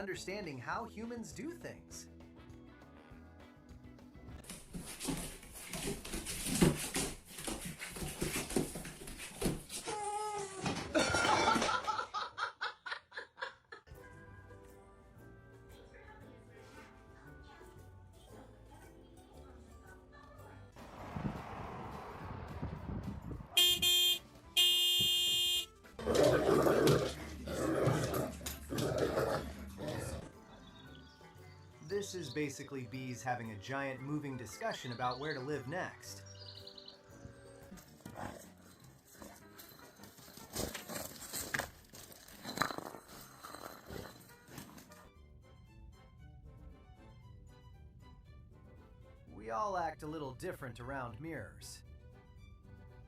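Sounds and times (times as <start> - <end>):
person laughing: 10.9 - 13.9
dog growling: 26.0 - 30.4.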